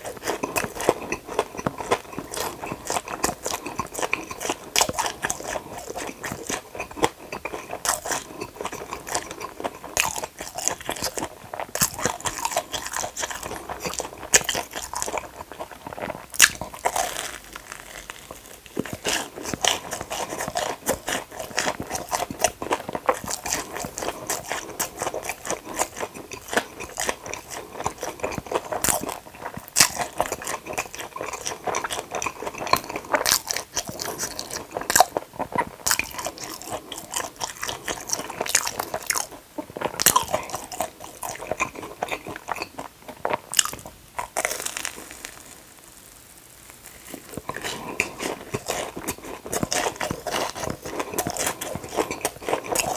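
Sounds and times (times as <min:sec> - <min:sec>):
wet chewing: 0:00.0 - 0:45.6, 0:46.7 - 0:52.9
crisp crunches of fried food: 0:00.0 - 0:52.9.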